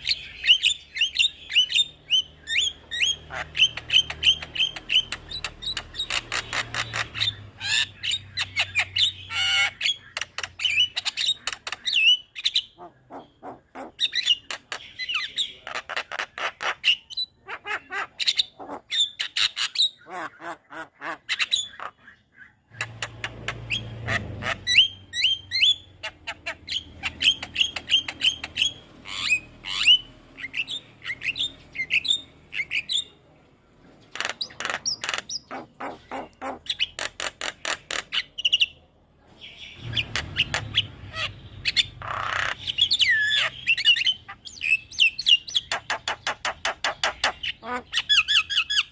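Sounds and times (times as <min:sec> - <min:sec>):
bird singing sharp chirps: 0:00.0 - 0:13.4, 0:21.3 - 0:33.2, 0:34.0 - 0:48.9.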